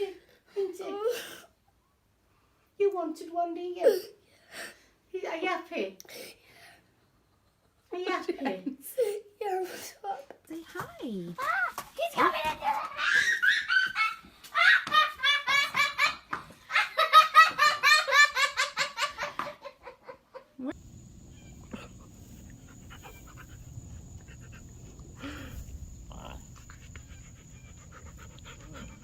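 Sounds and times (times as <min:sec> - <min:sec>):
young child laughing: 0:12.6 - 0:20.7
low steady hum: 0:20.7 - 0:29.0.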